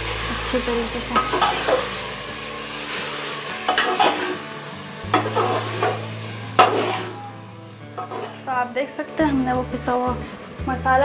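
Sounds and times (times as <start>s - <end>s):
meat sizzling in oil: 0.0s - 8.8s
metal spoon scraping a pot: 3.7s - 4.4s, 5.2s - 7.2s, 8.0s - 8.5s.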